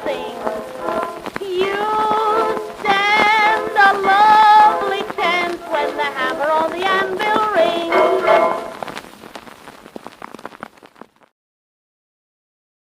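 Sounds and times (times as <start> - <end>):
woman singing with accompaniment: 0.0 - 8.8.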